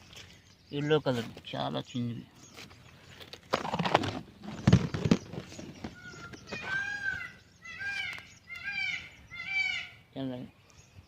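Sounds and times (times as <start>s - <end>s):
peafowl calling: 4.4s - 10.3s.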